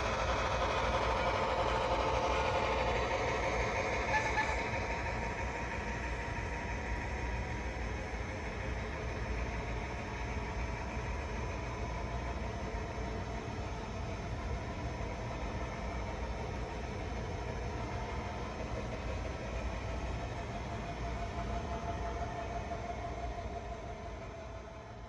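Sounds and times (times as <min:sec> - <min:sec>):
model train humming: 0:00.0 - 0:25.0.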